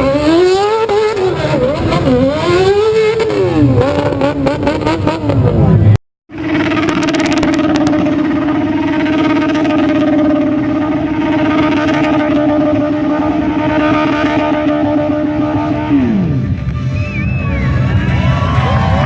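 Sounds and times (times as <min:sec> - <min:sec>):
motorcycle engine at high revs: 0:00.0 - 0:16.8.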